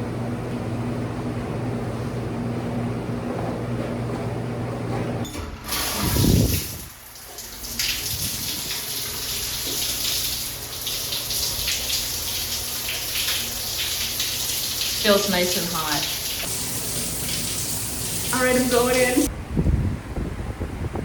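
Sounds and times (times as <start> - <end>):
low rumble of shower pipes: 3.4 - 19.8
shower water spraying: 5.7 - 19.3.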